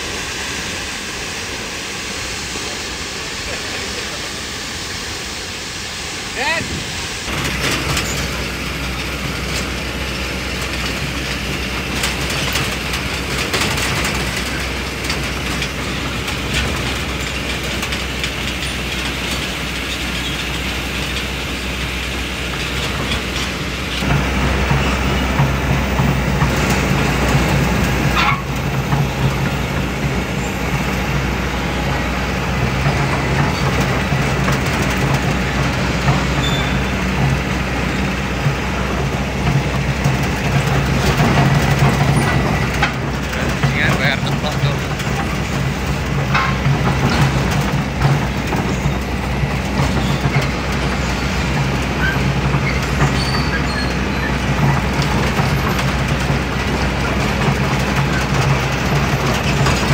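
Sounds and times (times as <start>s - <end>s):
excavator diesel engine running: 0.0s - 59.9s
metallic clanks: 22.6s - 29.8s, 39.0s - 59.9s.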